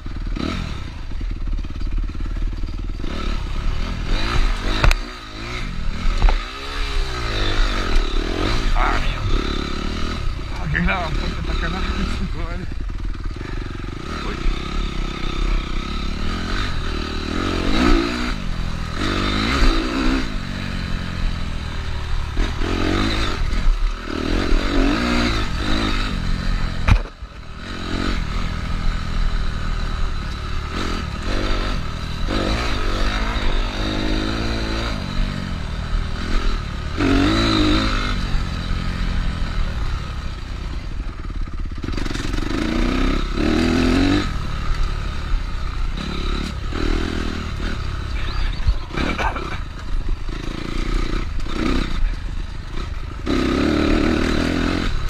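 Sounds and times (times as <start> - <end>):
clatter: 0.0 - 3.5
motorcycle engine revving: 0.0 - 55.0.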